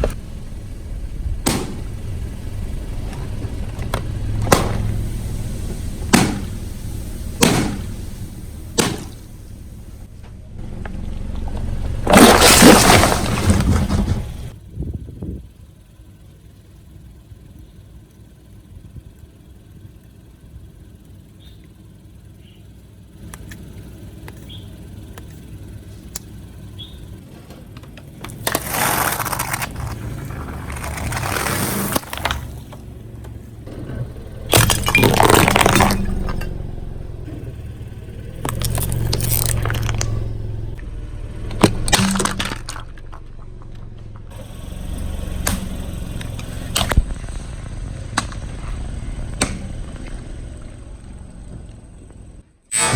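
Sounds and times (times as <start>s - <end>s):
car rumbling: 0.0s - 52.9s
tyre crushing brittle objects: 12.0s - 14.5s, 28.0s - 32.8s, 34.5s - 36.6s, 38.4s - 40.3s, 41.6s - 43.4s.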